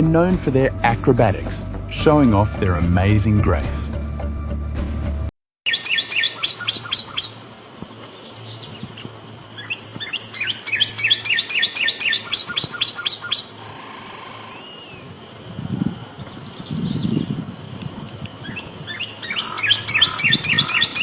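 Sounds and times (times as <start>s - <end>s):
cardinal singing whistles: 18.9s - 21.0s.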